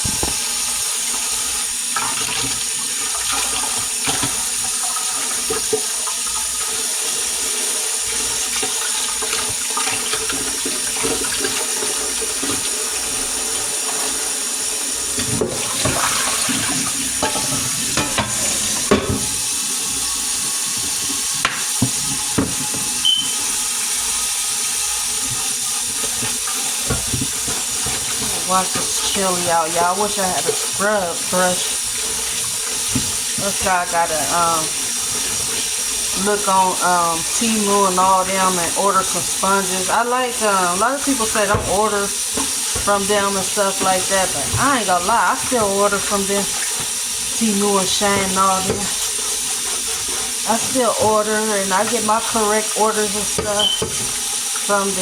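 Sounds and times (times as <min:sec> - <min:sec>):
tap running into sink: 0:00.0 - 0:07.3, 0:08.0 - 0:30.8, 0:31.5 - 0:36.2, 0:40.8 - 0:47.4, 0:48.0 - 0:55.0
pot and dishes clinking: 0:17.2 - 0:19.4.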